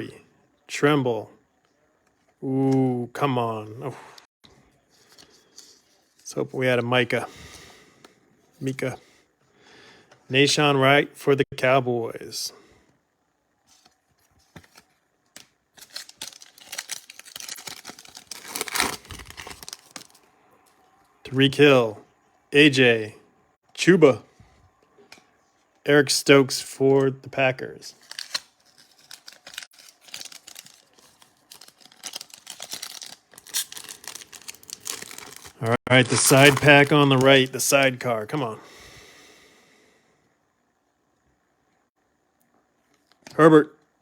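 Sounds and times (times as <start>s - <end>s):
cards being handled: 13.7s - 20.2s, 28.0s - 37.5s
foil wrapper tearing and crinkling: 15.4s - 20.2s, 28.0s - 37.5s.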